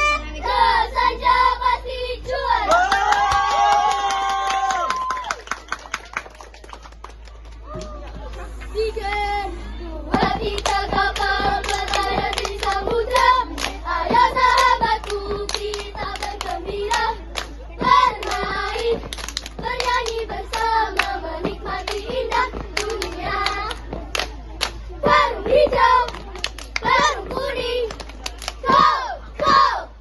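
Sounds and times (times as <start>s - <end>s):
hand claps: 10.2s - 24.8s, 26.0s - 27.2s.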